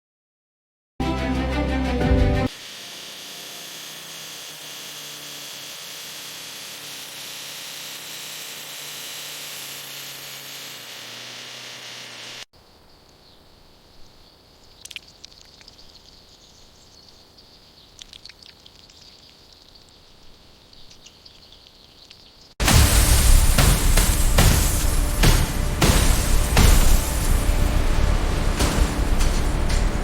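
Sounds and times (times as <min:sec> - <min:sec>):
bird chirps: 0:12.8 - 0:22.6.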